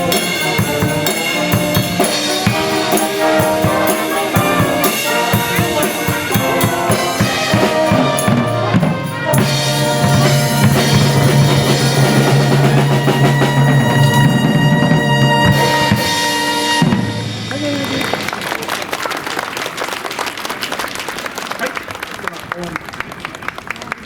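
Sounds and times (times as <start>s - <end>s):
held low chord: 0.0s - 18.2s
pitched instruments: 0.0s - 18.4s
drum kit beat: 0.0s - 18.6s.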